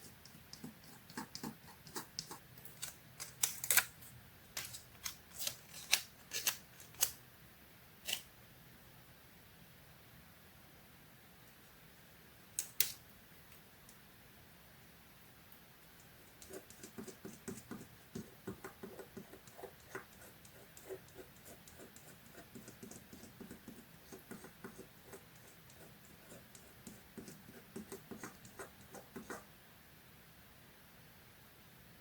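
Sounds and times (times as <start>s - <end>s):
hands tapping and scratching paper: 0.0s - 3.9s, 16.1s - 29.5s.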